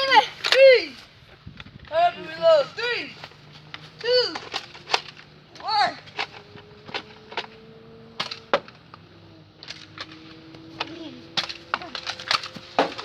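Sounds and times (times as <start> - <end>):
foam darts striking: 8.2 - 8.7, 11.4 - 13.0.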